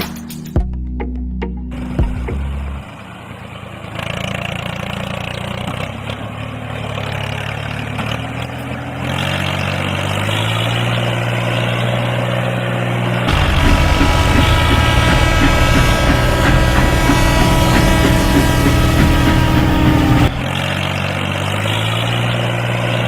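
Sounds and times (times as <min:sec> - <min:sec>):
engine running steadily: 0:01.8 - 0:23.0.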